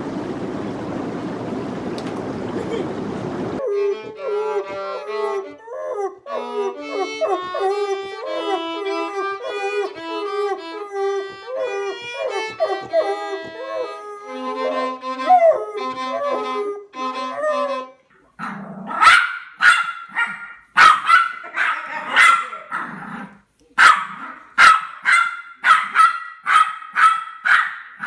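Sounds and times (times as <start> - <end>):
music: 3.6 - 18.1
dog barking: 18.4 - 23.1, 23.8 - 28.0.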